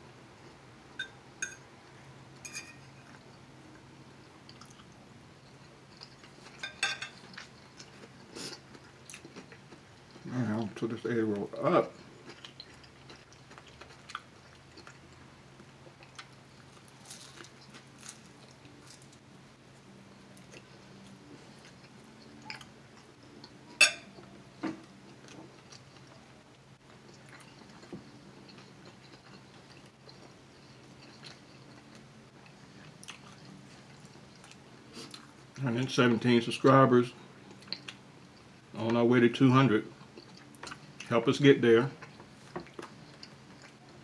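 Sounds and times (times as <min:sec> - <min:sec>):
person chewing: 0:04.4 - 0:10.3, 0:11.5 - 0:19.2, 0:20.3 - 0:26.2, 0:26.8 - 0:35.5, 0:37.4 - 0:38.5, 0:40.0 - 0:41.1, 0:42.0 - 0:44.0.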